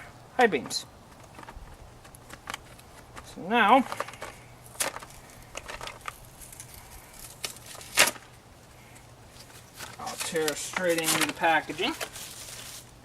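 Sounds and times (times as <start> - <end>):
packaging clicks and rustles: 1.1 - 8.2, 9.4 - 12.9
loud rustle or scrape: 9.3 - 13.0.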